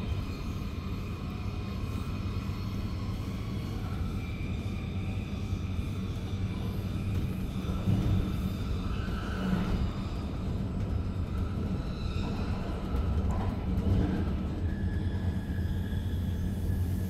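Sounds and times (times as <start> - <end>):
faint whining tones: 0.0 - 17.0
train cabin rumble: 6.5 - 17.0.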